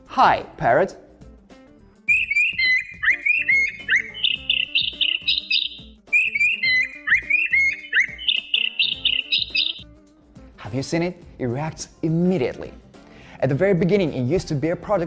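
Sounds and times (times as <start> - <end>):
faint background music: 0.0 - 15.0
toy playing bird chirps: 2.1 - 9.8.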